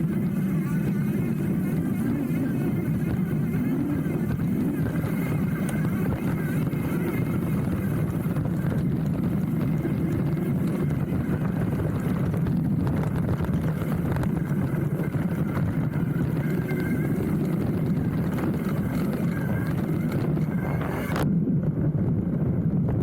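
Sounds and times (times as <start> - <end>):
bike rattles and clicks: 0.0 - 21.3.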